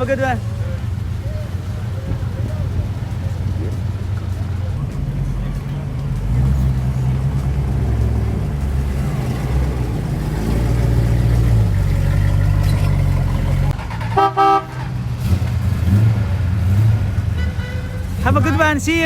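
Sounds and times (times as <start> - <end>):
car engine rumbling: 0.0 - 19.0
car horn toots: 14.0 - 15.0, 17.3 - 18.6.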